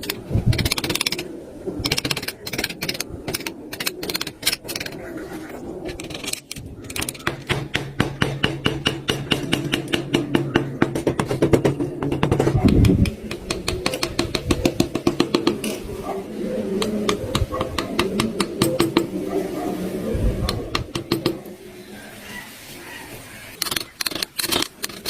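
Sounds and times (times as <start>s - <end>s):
hand tools clicking on wood: 0.0s - 1.2s, 1.8s - 5.0s, 5.9s - 15.8s, 16.8s - 19.1s, 20.4s - 21.4s, 23.6s - 25.0s.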